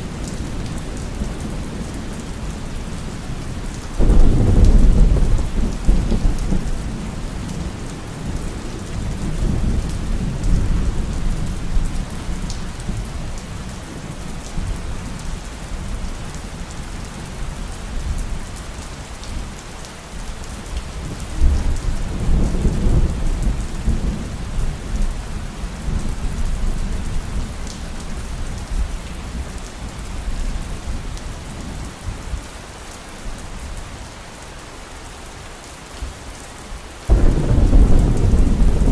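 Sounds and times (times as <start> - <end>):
heavy rain: 0.0 - 38.9
rolling thunder: 4.0 - 12.0, 37.1 - 38.9.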